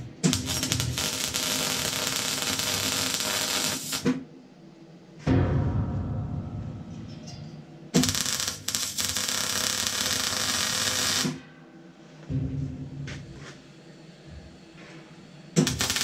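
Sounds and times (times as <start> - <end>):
welding arc crackling: 0.0 - 4.2, 8.0 - 11.4, 15.6 - 16.0
low hum: 4.5 - 8.0.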